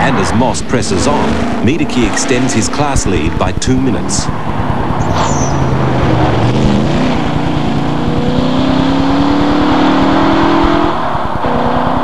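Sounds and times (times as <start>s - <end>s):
car engine accelerating: 0.0s - 12.0s
high squeal: 4.9s - 5.7s.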